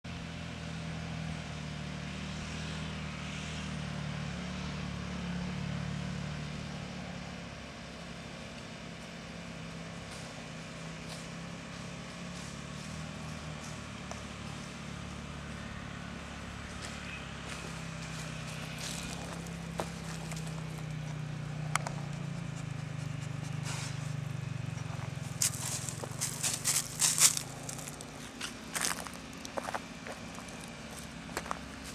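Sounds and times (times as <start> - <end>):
motorcycle engine running: 0.0 - 31.9
crackling and rustling bursts: 24.9 - 31.9.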